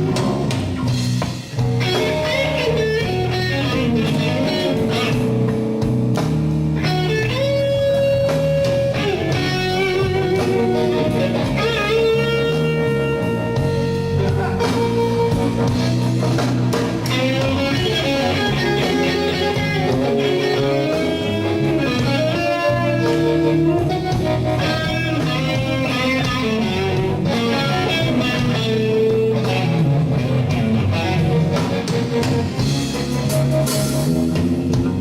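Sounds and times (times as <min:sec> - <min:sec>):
bass guitar: 0:00.0 - 0:35.0
lead electric guitar bent notes: 0:00.0 - 0:35.0.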